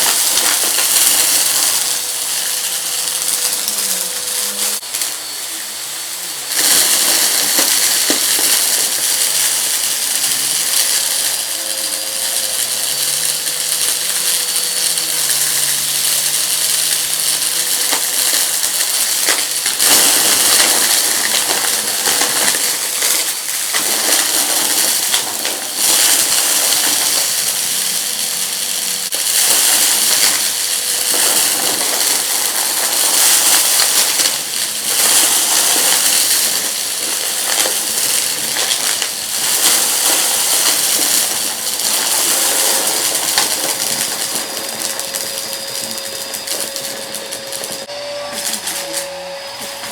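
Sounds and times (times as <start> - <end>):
debris crackling through vacuum: 0.0 - 48.8
vacuum cleaner running: 0.0 - 49.9.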